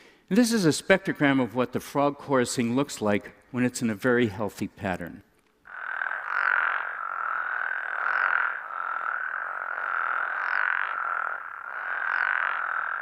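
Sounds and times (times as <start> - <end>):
chorus of toads calling: 5.7 - 13.0.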